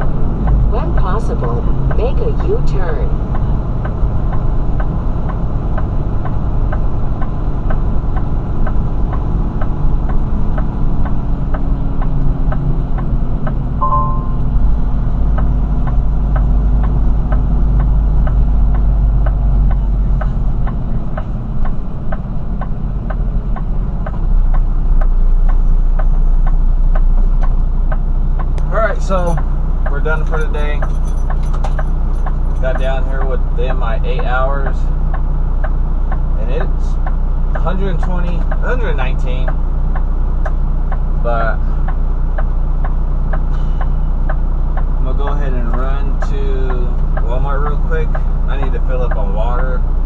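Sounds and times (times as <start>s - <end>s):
steady ticking: 0.0s - 50.0s
truck engine and road drone: 0.0s - 50.0s
short beep: 13.8s - 14.6s.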